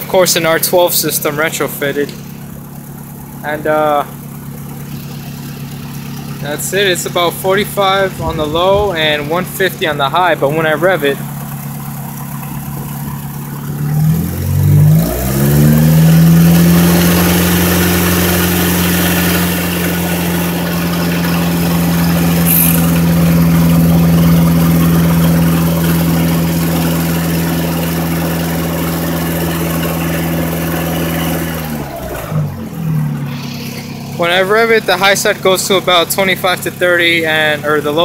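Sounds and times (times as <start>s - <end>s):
car engine revving: 0.0s - 37.7s.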